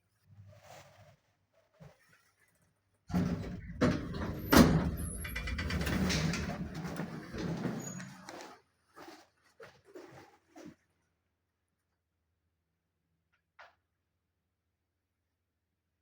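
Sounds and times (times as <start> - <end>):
lift doors sliding: 3.1 - 8.3.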